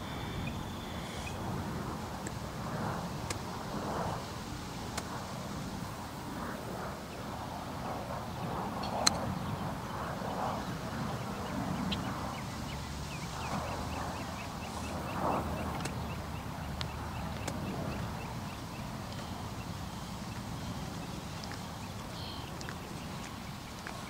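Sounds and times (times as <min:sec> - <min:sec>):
birds chirping: 0:00.0 - 0:01.5, 0:08.4 - 0:24.0.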